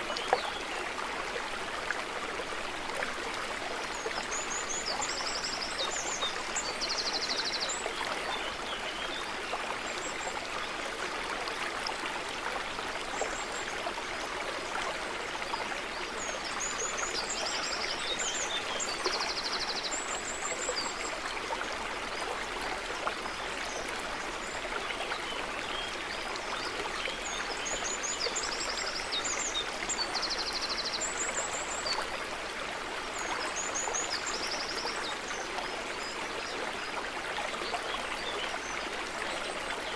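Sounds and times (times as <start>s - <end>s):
stream running over stones: 0.0s - 39.9s.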